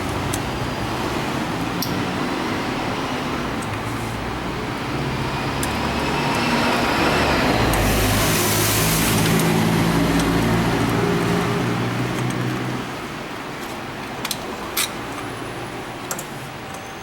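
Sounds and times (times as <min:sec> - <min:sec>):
loud hiss: 0:07.6 - 0:10.6.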